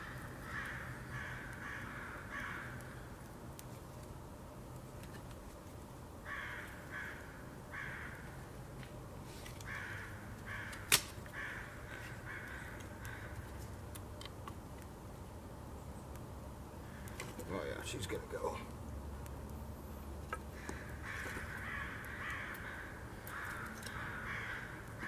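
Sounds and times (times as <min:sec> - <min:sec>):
crow cawing: 0:00.0 - 0:03.0, 0:06.2 - 0:08.4, 0:09.6 - 0:13.5, 0:20.5 - 0:25.0
sharp crack: 0:10.7 - 0:11.4
campfire ticking: 0:16.0 - 0:25.0.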